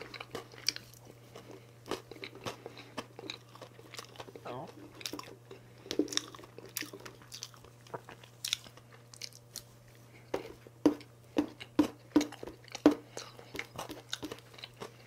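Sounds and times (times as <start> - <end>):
person chewing cake: 0.0 - 15.0.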